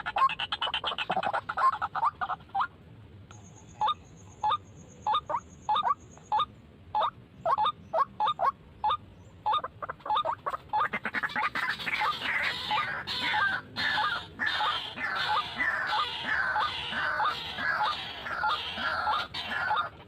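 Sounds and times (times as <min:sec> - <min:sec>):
waterhen harsh calls: 0:00.0 - 0:02.8, 0:03.8 - 0:20.0.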